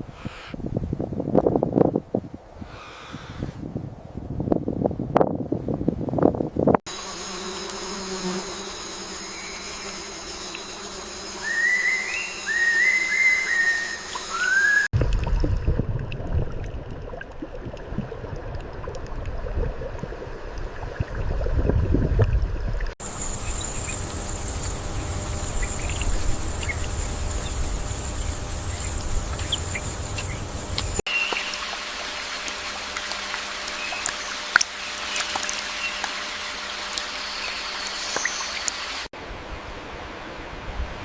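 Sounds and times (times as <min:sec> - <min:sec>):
low wind rumble: 0:00.0 - 0:06.8, 0:14.9 - 0:31.0, 0:39.2 - 0:41.0
high-pitched insect buzz: 0:06.9 - 0:14.9, 0:23.0 - 0:39.1
insect drone: 0:06.9 - 0:14.9, 0:23.0 - 0:41.0
bird chirps: 0:11.4 - 0:14.9, 0:25.4 - 0:27.6.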